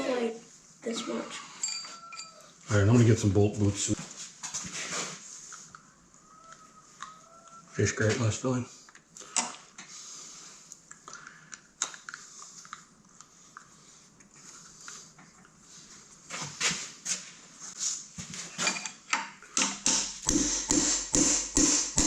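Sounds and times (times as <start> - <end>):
tools and metal parts clinking: 1.6 - 2.4, 18.5 - 19.2.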